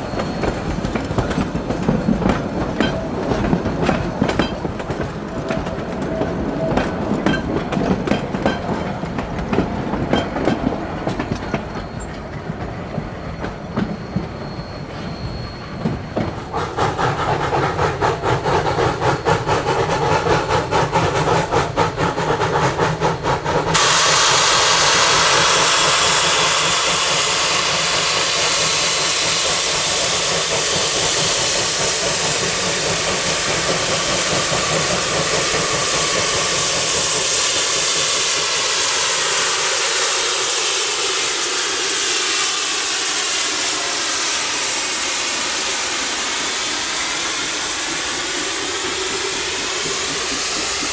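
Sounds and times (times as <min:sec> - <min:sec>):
steam locomotive clatter: 0:00.0 - 0:50.9
steam hissing: 0:12.8 - 0:50.9.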